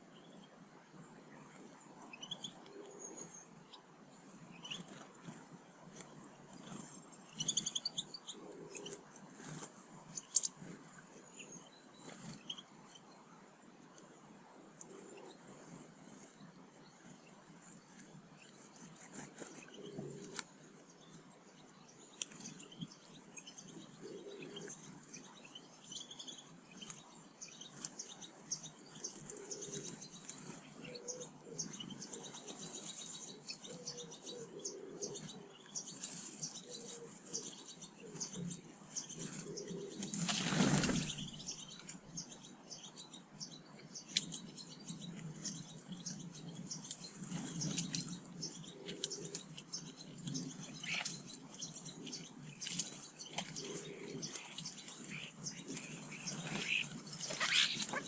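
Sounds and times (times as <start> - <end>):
small birds chirping: 0.0 - 58.0
loud rush of wings: 39.2 - 41.5, 50.4 - 58.0.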